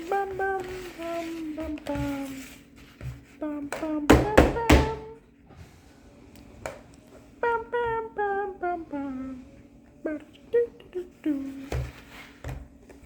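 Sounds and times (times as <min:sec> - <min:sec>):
person humming a tune: 0:00.0 - 0:02.4, 0:03.4 - 0:05.2, 0:07.4 - 0:09.5.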